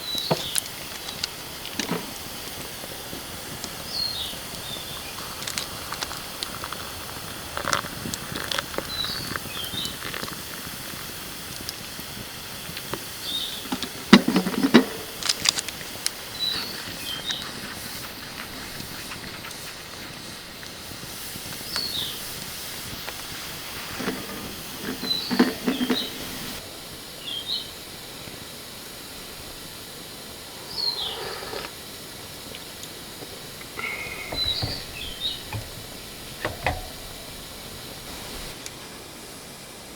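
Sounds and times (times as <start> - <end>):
steady hiss: 0.0 - 39.9
clattering clicks and knocks: 33.8 - 38.6
small bird chirping: 33.8 - 38.6.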